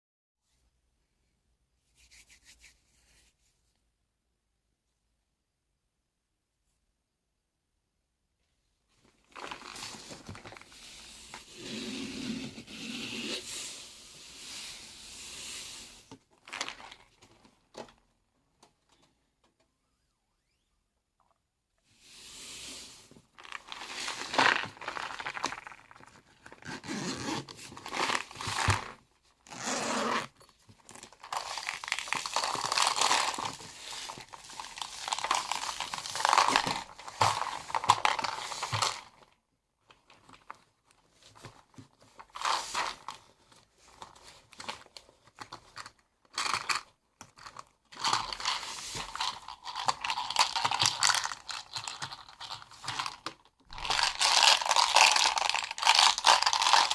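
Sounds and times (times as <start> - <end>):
crinkling and rustling: 8.9 - 12.7, 16.0 - 19.6, 23.0 - 56.9.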